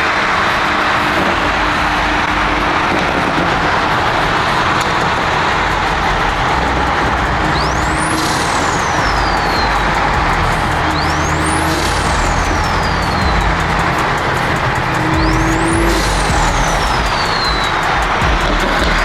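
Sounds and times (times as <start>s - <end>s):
high tone sweeping: 0.0s - 19.0s
low engine drone: 0.0s - 19.0s
road and wind noise: 0.0s - 19.0s.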